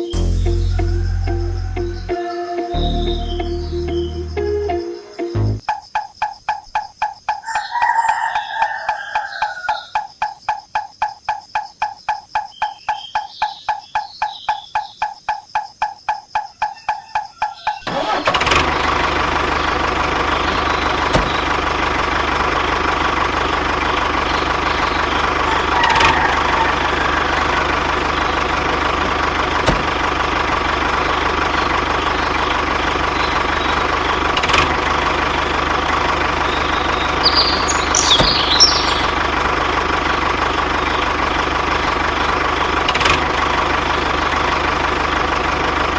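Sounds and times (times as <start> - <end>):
tractor engine idling: 0.0 - 5.6, 17.9 - 45.9.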